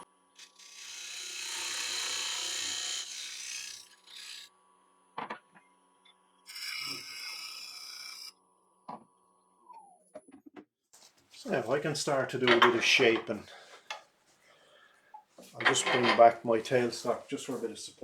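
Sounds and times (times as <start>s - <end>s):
tool scraping wood on lathe: 0.4s - 4.5s, 6.5s - 8.3s, 15.4s - 17.2s.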